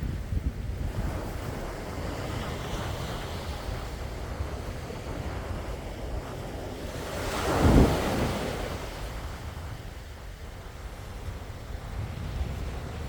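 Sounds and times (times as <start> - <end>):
sea waves washing in: 0.0 - 13.0
wind rumbling on microphone: 0.0 - 13.0
wave breaking: 7.2 - 8.9.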